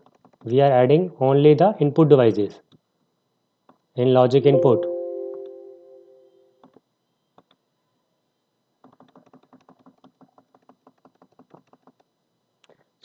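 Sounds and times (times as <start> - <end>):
faint tone: 4.4 - 6.2
laptop keys clicking: 8.8 - 12.0.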